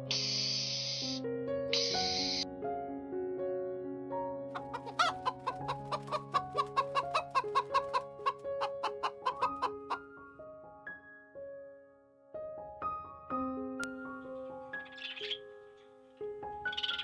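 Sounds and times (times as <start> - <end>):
piano music with held notes: 0.0 - 17.0
hen clucking: 4.6 - 10.0.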